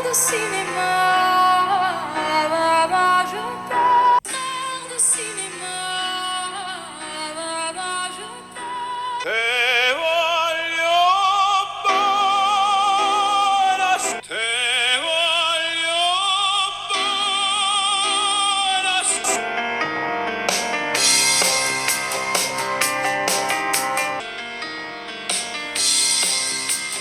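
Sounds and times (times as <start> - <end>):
operatic singing through phone speaker: 0.0 - 19.8.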